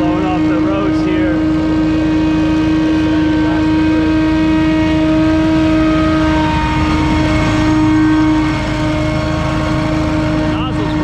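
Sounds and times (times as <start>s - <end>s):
blower whine: 0.0s - 11.0s
engine low rumble: 0.0s - 11.0s.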